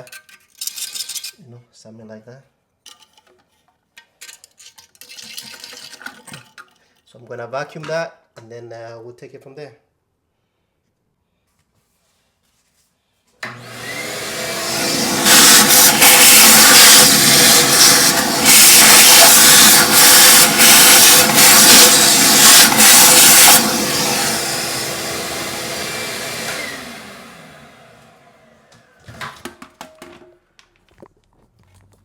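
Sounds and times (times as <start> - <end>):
vacuum cleaner running: 13.4 - 29.8.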